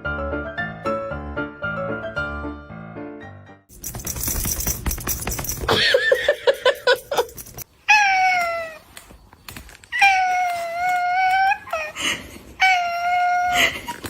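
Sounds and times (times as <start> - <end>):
piano music: 0.0 - 5.4
clicking and rattling noise: 3.7 - 5.8.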